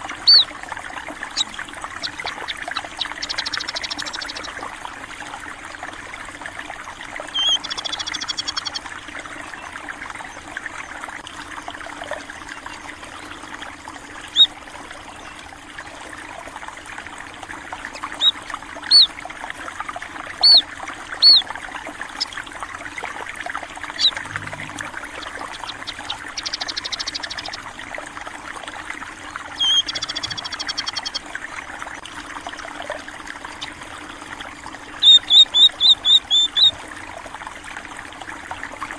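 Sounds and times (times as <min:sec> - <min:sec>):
stream water trickling: 0:00.0 - 0:38.9
bird trills: 0:00.1 - 0:00.6, 0:01.2 - 0:04.6, 0:07.3 - 0:08.8, 0:14.3 - 0:14.5, 0:18.1 - 0:19.1, 0:20.4 - 0:21.5, 0:23.9 - 0:27.7, 0:29.6 - 0:31.2, 0:35.0 - 0:36.8
small birds chirping: 0:00.1 - 0:00.6, 0:01.2 - 0:04.6, 0:07.3 - 0:08.8, 0:14.3 - 0:14.6, 0:18.0 - 0:19.2, 0:20.4 - 0:21.5, 0:23.8 - 0:27.6, 0:29.6 - 0:31.2, 0:34.9 - 0:36.8.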